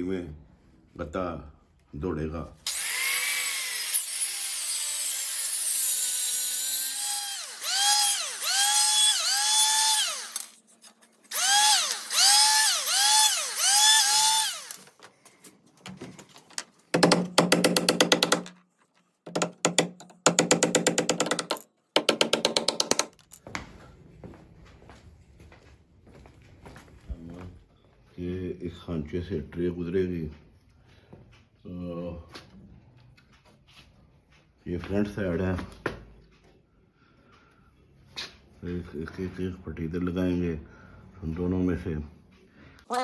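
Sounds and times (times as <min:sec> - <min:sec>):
power drill whirring into wood: 0:02.7 - 0:10.6, 0:11.3 - 0:14.9.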